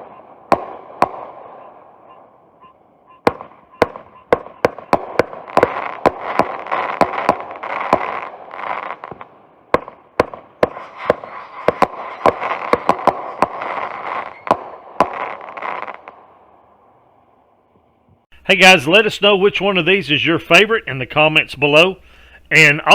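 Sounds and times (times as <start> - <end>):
fireworks crackling: 0.0 - 16.8
fireworks sharp reports: 0.0 - 17.4, 18.4 - 22.9.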